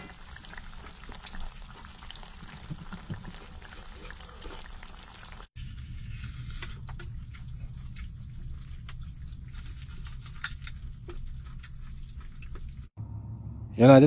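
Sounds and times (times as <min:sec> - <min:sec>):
stew simmering and bubbling: 0:00.0 - 0:13.0
low hum: 0:05.6 - 0:14.0.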